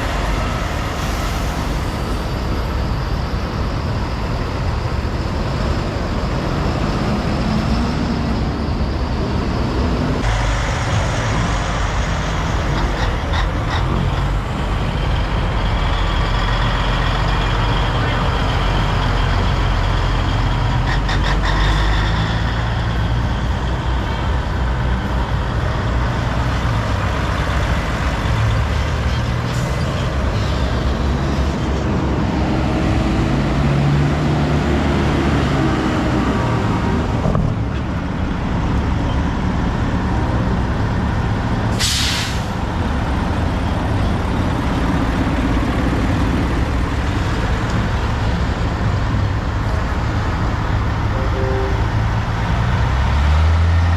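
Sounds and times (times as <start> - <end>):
air brake hiss: 41.7 - 42.6.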